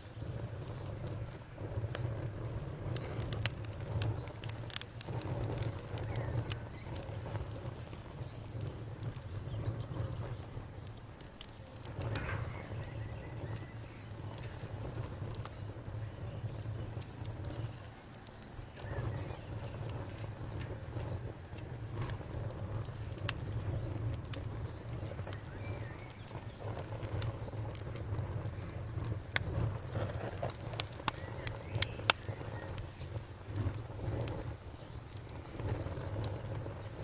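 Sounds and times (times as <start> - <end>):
cricket trilling: 0.0 - 37.0
wood fire crackling and popping: 0.0 - 37.0.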